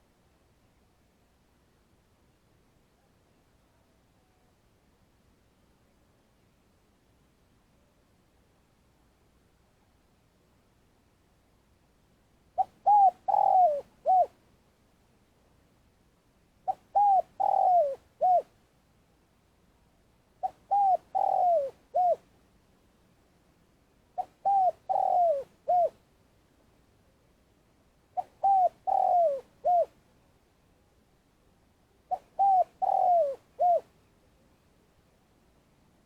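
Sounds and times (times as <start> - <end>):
dove cooing: 12.6 - 14.4, 16.6 - 18.5, 20.4 - 22.2, 24.2 - 26.0, 28.2 - 30.0, 32.1 - 33.9.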